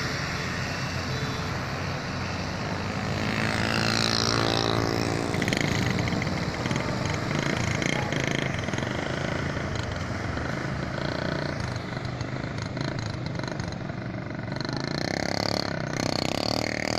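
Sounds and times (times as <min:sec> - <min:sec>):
voices: 0:05.4 - 0:10.0.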